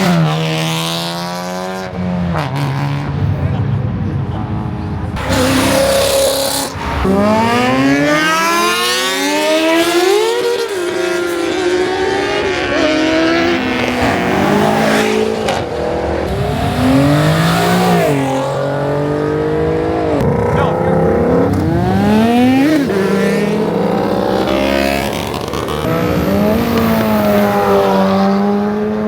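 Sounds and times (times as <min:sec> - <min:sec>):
tyres squealing: 0:05.2 - 0:07.6
car engine revving hard: 0:05.2 - 0:29.0.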